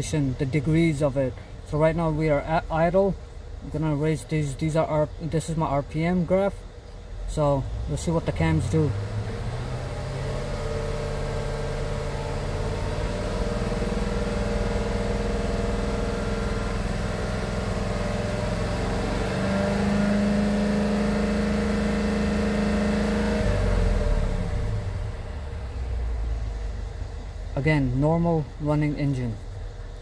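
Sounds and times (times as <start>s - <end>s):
car engine revving: 7.3s - 30.0s.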